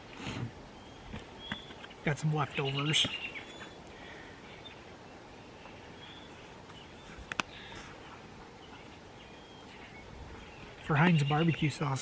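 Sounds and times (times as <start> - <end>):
faint bird chirps: 0.7 - 12.0.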